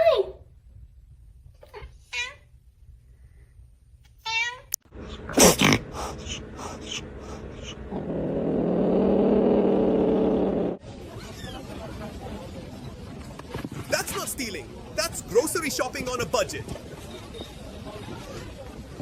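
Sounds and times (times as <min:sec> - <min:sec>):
cat meowing: 0:04.2 - 0:04.7
steady low noise: 0:04.9 - 0:10.8.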